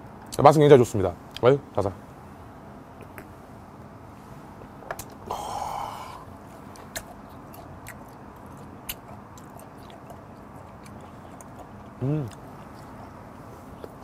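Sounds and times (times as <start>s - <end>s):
low hiss: 4.1s - 6.3s
man exhaling breathily: 5.3s - 6.3s
chewing with soft mouth clicks: 6.5s - 14.0s.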